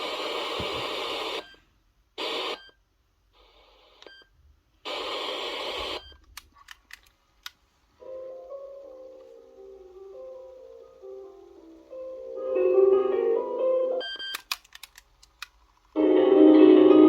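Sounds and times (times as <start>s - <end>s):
static hiss bursts: 0.0s - 2.6s, 4.8s - 6.3s
sharp clicks: 14.3s - 15.6s.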